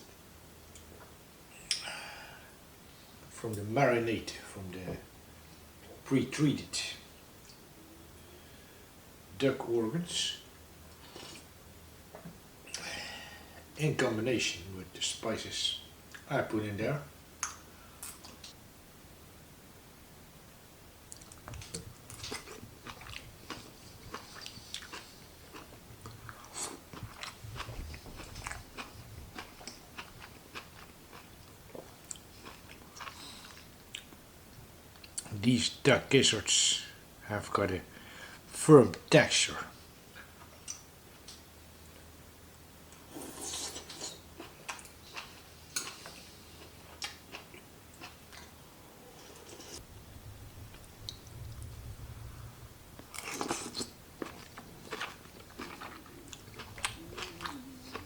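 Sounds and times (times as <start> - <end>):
person chewing: 10.9 - 11.5, 21.1 - 34.2, 42.9 - 49.8, 53.0 - 58.0.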